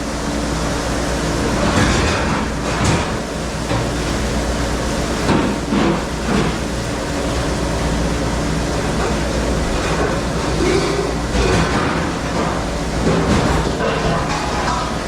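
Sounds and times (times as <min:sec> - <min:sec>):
dishwasher humming and rushing: 0:00.0 - 0:15.0
dishes clattering: 0:09.1 - 0:15.0.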